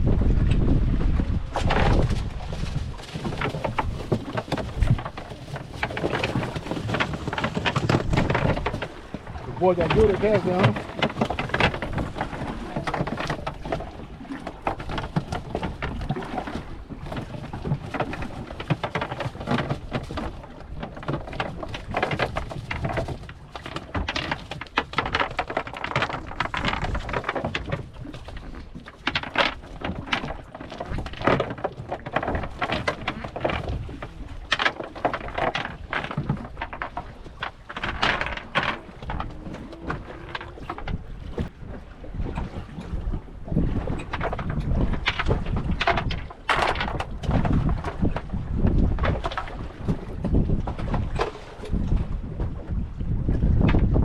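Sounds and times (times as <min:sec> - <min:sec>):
wind buffeting microphone: 0:00.0 - 0:23.4, 0:31.9 - 0:54.0
waves splashing against boat: 0:00.0 - 0:54.0.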